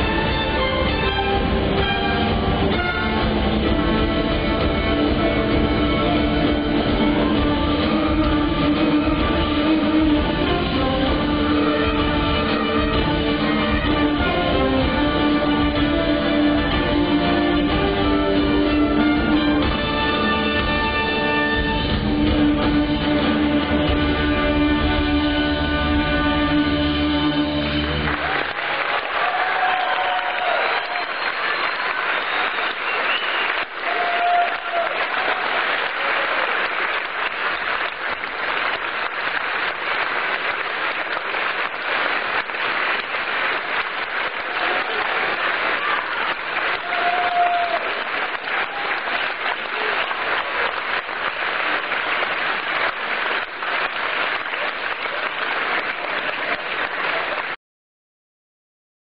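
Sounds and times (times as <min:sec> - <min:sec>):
audience applauding: 0:27.3 - 0:57.6
audience calls: 0:27.7 - 0:57.6.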